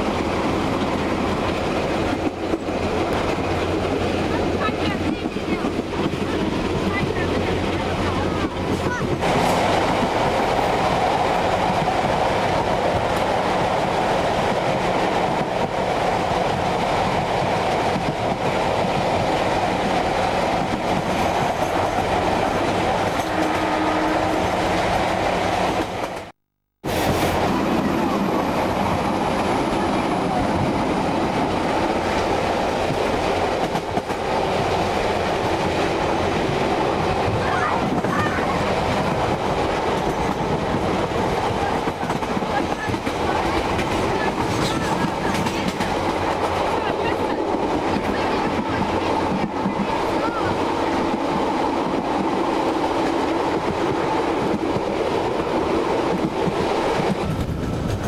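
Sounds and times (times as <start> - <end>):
train wheels clattering on rails: 28.1 - 58.0.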